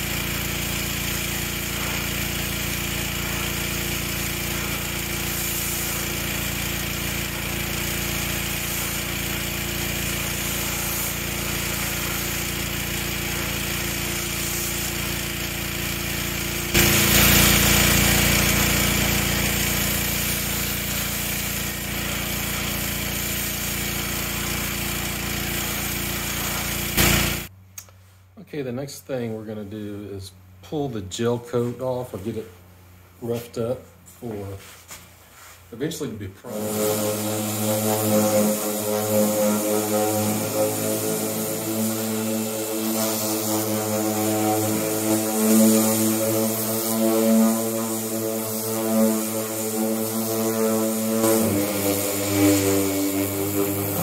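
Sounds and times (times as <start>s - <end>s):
pressure washer jet hissing: 0.0s - 27.5s, 36.4s - 54.0s
motor hum: 36.5s - 54.0s.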